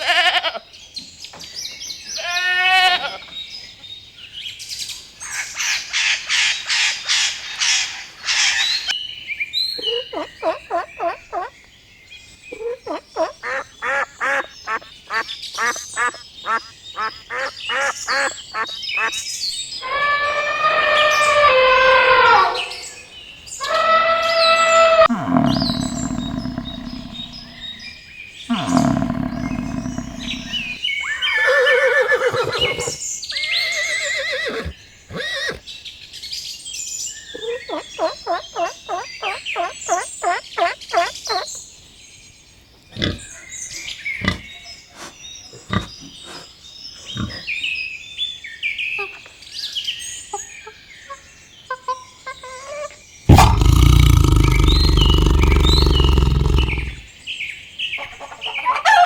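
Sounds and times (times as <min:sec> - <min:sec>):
loud deep animal call: 0:19.8 - 0:23.0, 0:23.6 - 0:30.8, 0:53.3 - 0:57.1
animal calls: 0:19.8 - 0:35.6, 0:52.7 - 0:57.1.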